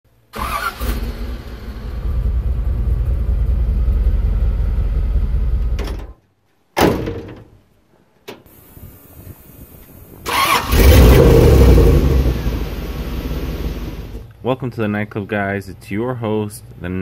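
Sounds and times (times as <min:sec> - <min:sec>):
car engine starting and rumbling: 0:00.4 - 0:06.1, 0:09.6 - 0:14.3.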